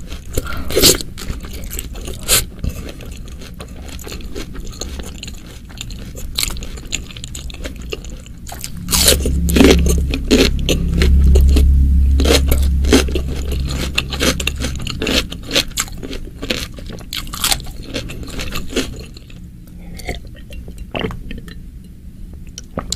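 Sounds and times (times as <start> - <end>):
wet crunchy chewing: 0.0 - 21.6
low rumble: 6.5 - 20.0.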